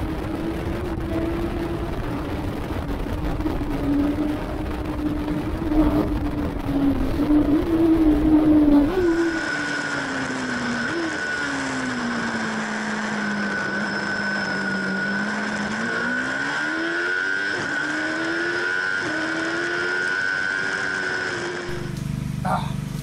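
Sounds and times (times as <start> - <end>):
wind noise: 0.0 - 12.6
racing motorcycle engine: 0.0 - 23.0.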